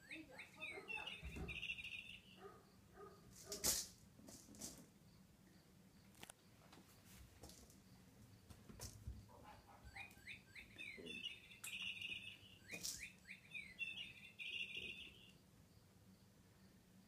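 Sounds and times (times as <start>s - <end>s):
bird chirping with buzzy trill: 0.0s - 2.8s, 9.6s - 15.4s.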